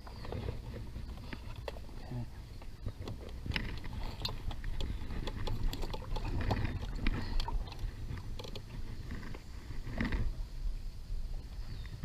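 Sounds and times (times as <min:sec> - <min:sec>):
paddle clicking against hull: 0:00.0 - 0:10.4
water splashes: 0:03.8 - 0:10.2.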